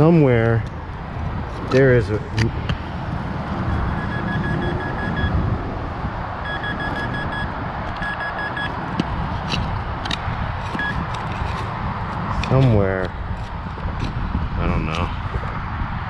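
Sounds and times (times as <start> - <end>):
wind noise on microphone: 0.0 - 16.0
metal detector short beeps: 3.9 - 5.3, 6.5 - 8.7, 10.8 - 11.0.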